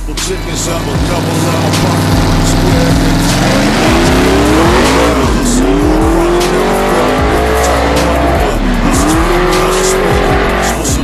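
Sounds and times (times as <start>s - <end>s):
car engine revving hard: 0.0s - 11.0s
hip hop beat: 0.0s - 11.0s.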